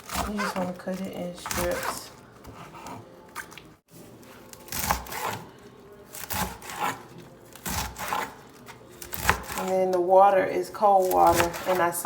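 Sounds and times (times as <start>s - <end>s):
knife slicing leaves on cutting board: 4.5s - 5.5s, 6.1s - 9.7s.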